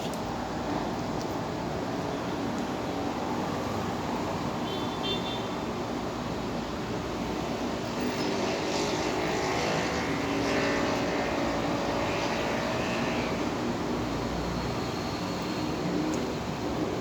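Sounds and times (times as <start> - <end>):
passing vehicle engine drone: 7.6 - 14.8.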